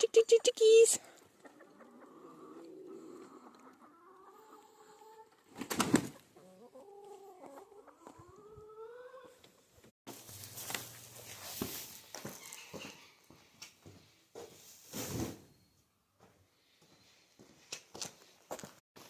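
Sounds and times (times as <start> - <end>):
hens clucking: 0.1 - 5.5, 6.1 - 9.5.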